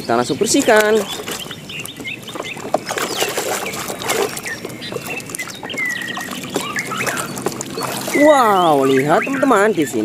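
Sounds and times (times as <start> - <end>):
muddy water squelching and splashing: 0.0 - 10.0.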